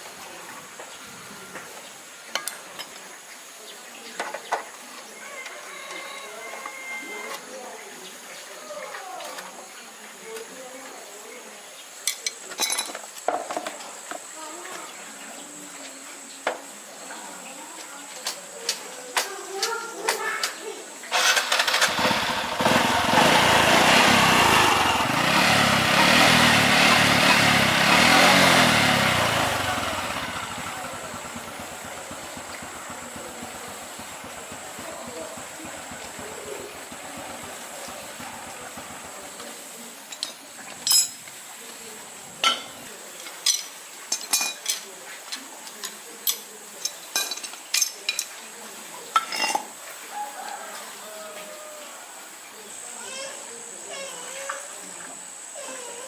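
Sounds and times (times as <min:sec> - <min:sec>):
metal tools clinking: 0:12.1 - 0:13.0, 0:40.1 - 0:41.2, 0:46.3 - 0:48.3
motorcycle engine running: 0:21.1 - 0:40.0.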